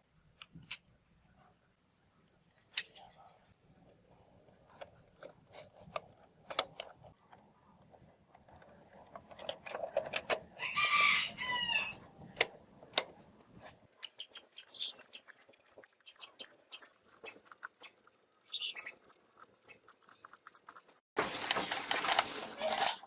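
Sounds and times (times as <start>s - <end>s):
rooster crowing: 10.6s - 12.1s.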